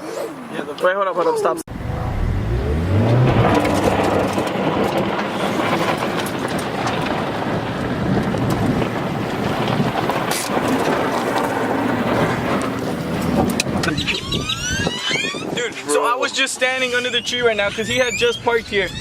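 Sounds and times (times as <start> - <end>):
vehicle engine: 1.7 - 14.9
wind noise: 1.7 - 15.9, 16.8 - 19.0
tyres crunching on dirt: 2.1 - 13.8.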